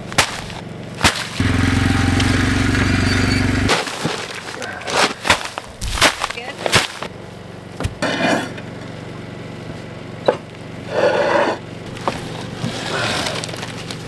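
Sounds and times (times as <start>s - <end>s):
earth-moving machine engine running: 0.0s - 5.8s, 6.4s - 14.0s
scraping rattling digging: 0.0s - 7.2s, 10.9s - 14.0s.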